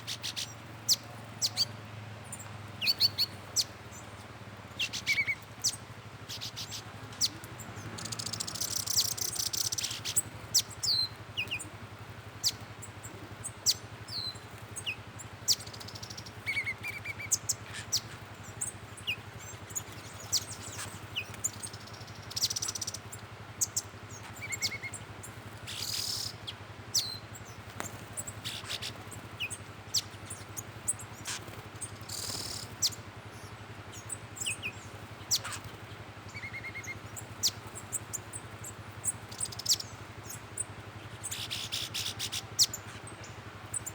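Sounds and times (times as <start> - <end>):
birds chirping: 0.0 - 43.9
rapid high twittering: 0.0 - 43.9.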